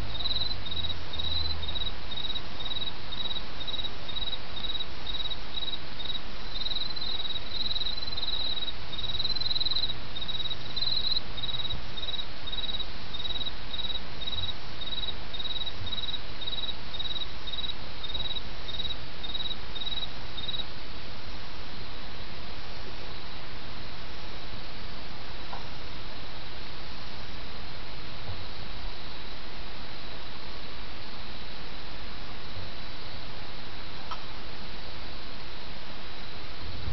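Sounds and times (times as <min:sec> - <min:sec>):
crickets chirping: 0:00.0 - 0:20.7
higher-pitched insect chirping: 0:00.1 - 0:20.7.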